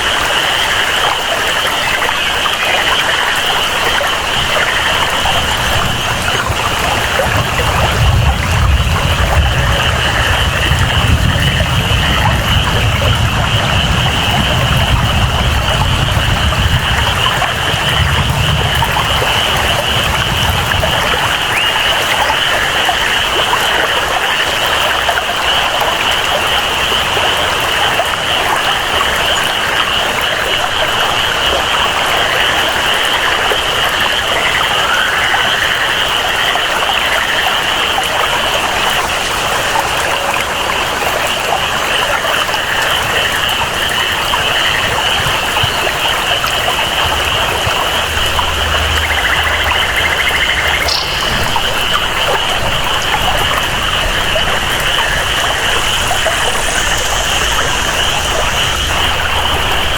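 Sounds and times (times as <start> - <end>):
flowing water: 0.0 - 59.9
steady rain: 0.0 - 59.9
high-pitched jungle chorus: 44.6 - 59.9
low rumble: 46.5 - 59.9.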